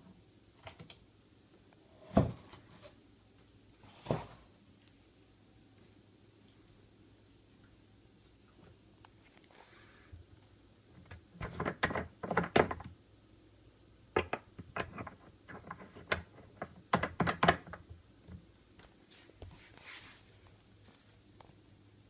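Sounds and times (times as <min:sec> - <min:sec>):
hard objects knocking and clicking: 0:11.0 - 0:13.0, 0:14.2 - 0:18.4.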